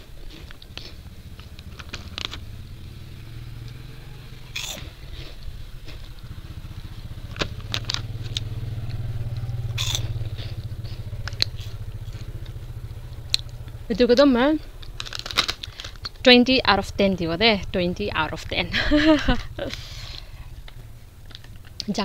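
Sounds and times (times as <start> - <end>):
potato chips being chewed: 0.0 - 2.4, 4.5 - 6.2, 9.8 - 12.6, 14.7 - 16.2
low steady rumble: 0.0 - 22.0.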